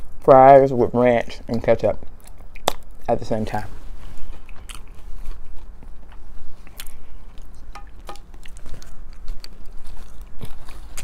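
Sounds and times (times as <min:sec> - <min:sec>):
mouth clicks and smacks: 0:01.5 - 0:03.1
person chewing fried food: 0:02.0 - 0:03.1, 0:04.1 - 0:11.0.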